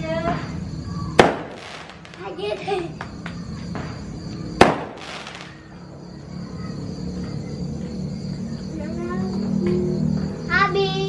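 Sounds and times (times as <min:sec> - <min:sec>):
firework bang: 0:01.2 - 0:02.3, 0:04.6 - 0:05.7
firework crackle: 0:01.2 - 0:02.8, 0:04.6 - 0:05.7.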